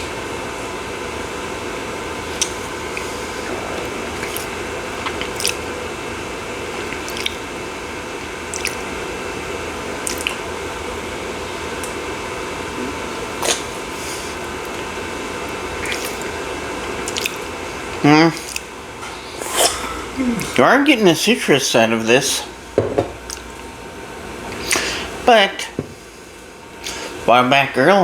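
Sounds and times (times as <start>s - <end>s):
steady background hum: 0.0s - 28.0s
wet mouth clicks and lip smacks: 2.4s - 3.1s, 4.2s - 5.6s, 6.9s - 7.5s, 8.5s - 8.9s, 10.0s - 10.4s, 13.4s - 13.7s, 15.8s - 16.3s, 17.0s - 17.5s, 18.4s - 18.7s, 23.3s - 23.5s.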